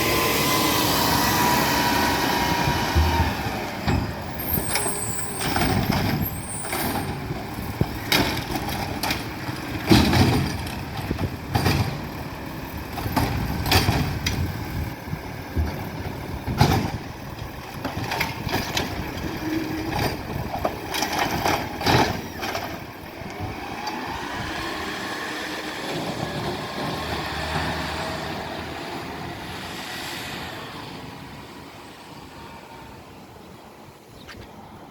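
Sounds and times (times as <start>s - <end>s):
truck engine whining: 0.0s - 33.6s
loud metallic bangs and clanks: 8.0s - 12.3s.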